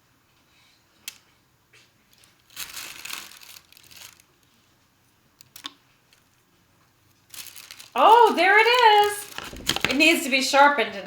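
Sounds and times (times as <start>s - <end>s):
packaging crinkling: 2.1s - 4.6s, 7.2s - 10.2s.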